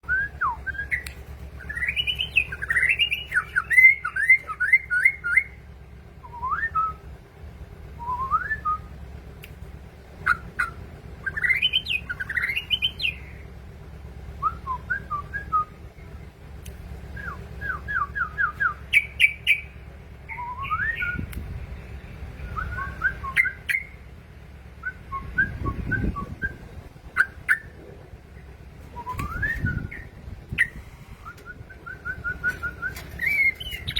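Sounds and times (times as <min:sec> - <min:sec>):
bird singing bubbling whistles: 0:00.0 - 0:05.6, 0:10.2 - 0:13.4, 0:17.2 - 0:21.3, 0:22.4 - 0:24.0, 0:24.8 - 0:27.9, 0:28.9 - 0:33.9.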